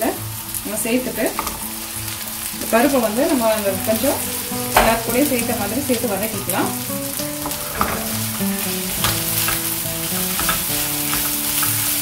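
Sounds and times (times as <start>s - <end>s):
food sizzling in oil: 0.0s - 12.0s
spatula scraping a pan: 6.4s - 12.0s.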